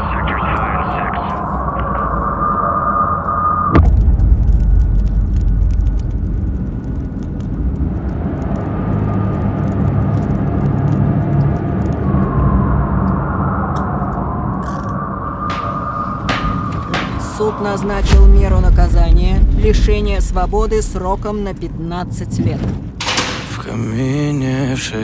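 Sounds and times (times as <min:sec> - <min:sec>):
sharp crack: 0:03.8 - 0:11.5, 0:15.3 - 0:22.1
motor vehicle rumble: 0:03.8 - 0:23.7.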